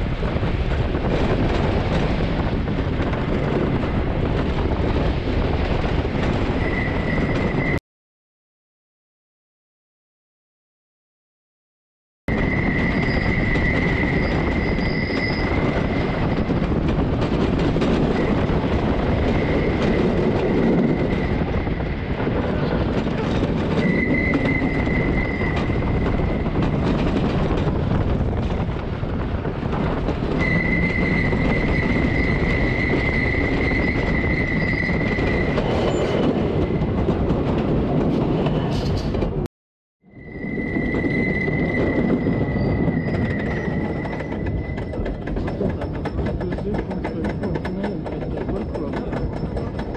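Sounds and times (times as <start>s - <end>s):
roller coaster wheels rumbling: 0.0s - 7.8s, 12.3s - 39.5s, 40.1s - 49.9s
high-pitched wheel squeal: 6.6s - 7.8s, 12.3s - 16.1s, 23.7s - 26.6s, 30.4s - 36.8s, 40.0s - 46.2s.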